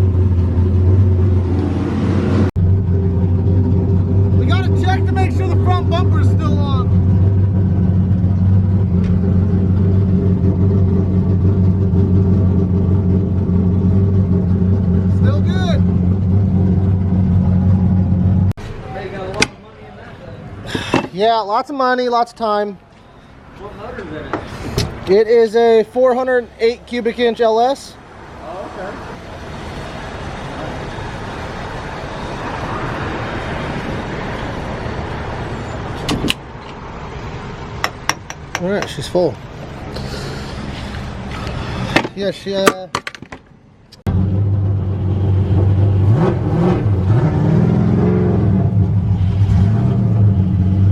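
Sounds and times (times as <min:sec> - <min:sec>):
car engine rumbling: 0:00.0 - 0:21.2, 0:27.9 - 0:50.9
motor vehicle rumble and hiss: 0:22.8 - 0:25.2, 0:28.0 - 0:42.4.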